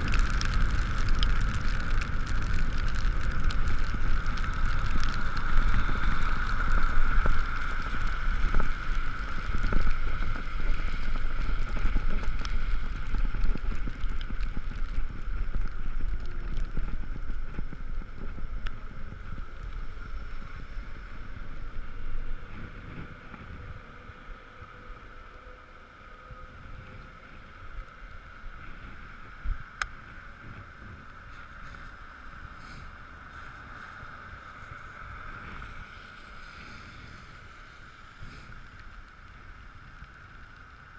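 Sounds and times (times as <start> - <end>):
wind buffeting: 0.0 - 25.3
wet road rumble: 0.0 - 40.9.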